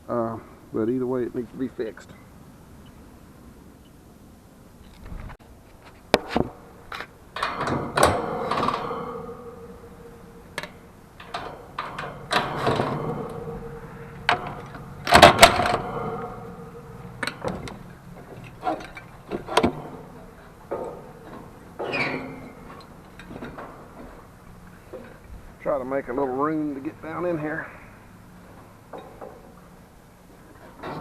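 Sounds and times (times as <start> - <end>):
faint steady hum: 0.0 - 31.0
metal tools clattering: 7.4 - 24.2.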